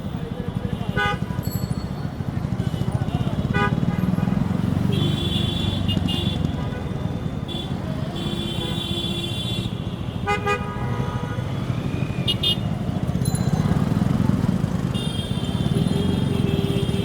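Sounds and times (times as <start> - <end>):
vehicle horns honking: 0.6 - 1.5, 2.4 - 12.8, 14.8 - 17.0.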